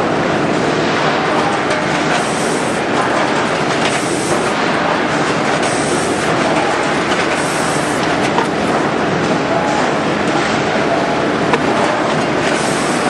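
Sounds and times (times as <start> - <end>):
packaging machine clatter: 1.3 - 8.8, 11.4 - 13.0.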